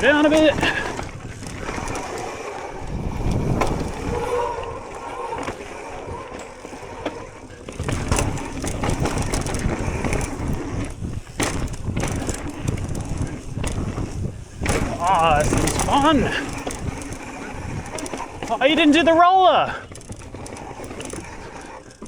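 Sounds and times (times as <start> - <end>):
wind on microphone: 0.0 - 6.3
bike rattling over bumps: 0.0 - 22.0
tyres on dirt and rock: 0.0 - 22.0.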